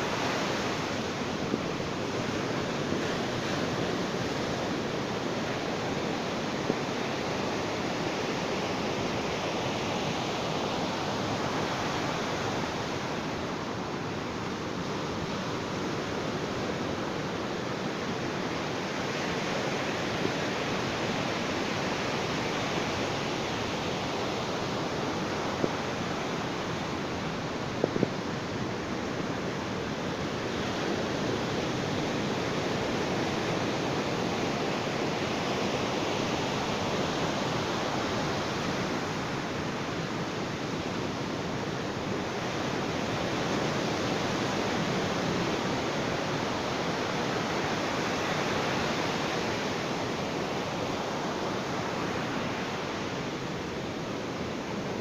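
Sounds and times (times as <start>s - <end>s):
waves washing onto beach: 0.0s - 55.0s.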